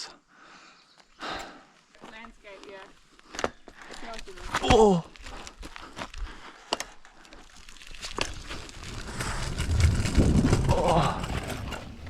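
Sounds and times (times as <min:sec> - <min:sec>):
tyres rumbling on dirt: 0:07.9 - 0:12.0.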